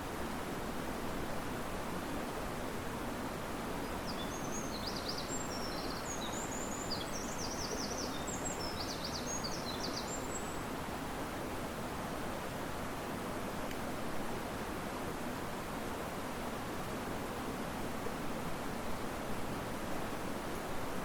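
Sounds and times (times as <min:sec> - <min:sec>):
wind in trees: 0:00.0 - 0:21.0
songbird twittering chirps: 0:04.0 - 0:10.6.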